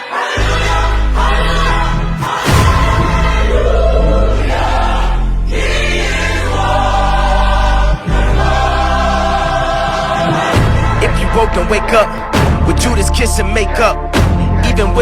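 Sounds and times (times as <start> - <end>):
gospel choir singing: 0.0 - 13.3
music with heavy bass: 2.0 - 5.2.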